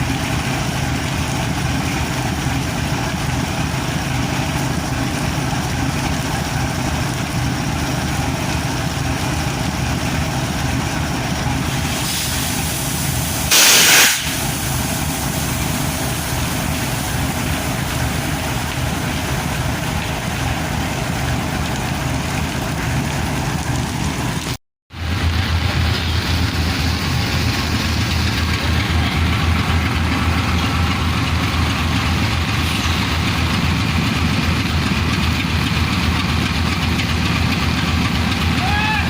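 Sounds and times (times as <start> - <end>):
diesel locomotive engine idling: 0.0 - 39.0
heavy rain: 0.0 - 39.0
loud short hiss: 11.8 - 15.5.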